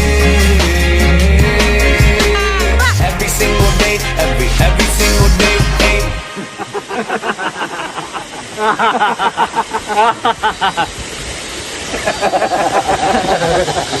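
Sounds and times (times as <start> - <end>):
waterfall rushing: 0.0 - 14.0
held voice sound: 2.0 - 3.8
people's voices: 2.2 - 3.1.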